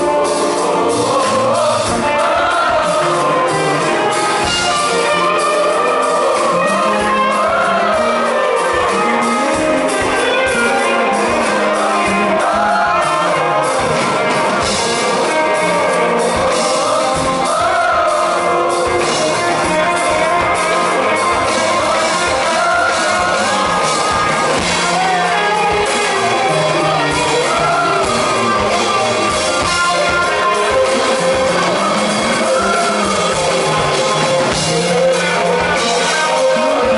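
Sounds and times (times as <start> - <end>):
rock band playing live: 0.0 - 36.9
man singing: 14.8 - 36.9.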